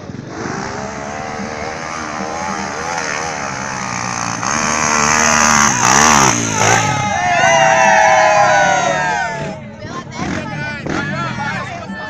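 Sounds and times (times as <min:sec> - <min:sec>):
dirt bike engine revving: 0:00.0 - 0:11.7.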